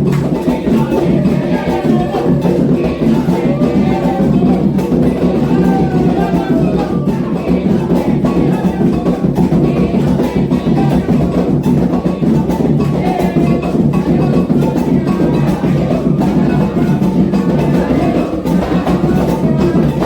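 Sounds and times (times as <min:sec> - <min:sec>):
bell or wood block percussion: 0:00.0 - 0:20.0
hand drums playing: 0:00.0 - 0:20.0
voices singing a chant: 0:00.0 - 0:20.0.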